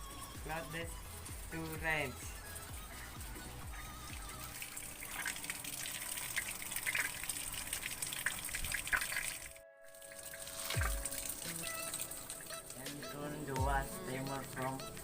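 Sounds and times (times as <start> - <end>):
water running into tub: 2.8 - 15.0.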